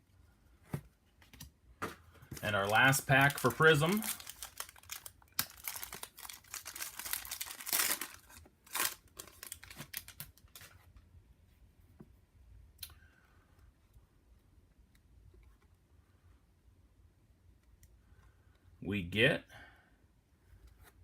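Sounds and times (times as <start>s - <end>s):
plastic wrapper tearing and crinkling: 2.4s - 10.6s.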